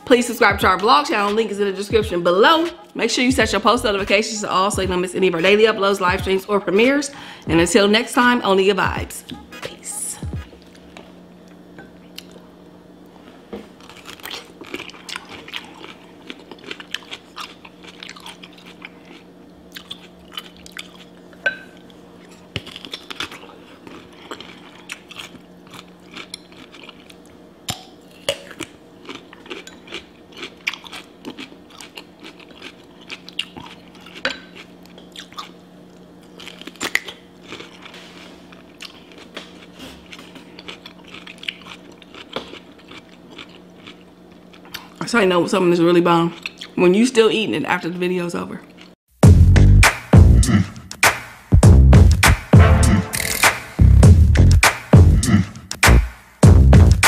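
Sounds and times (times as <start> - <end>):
low hum: 1.8 - 7.8, 49.2 - 51.0, 51.6 - 57.0.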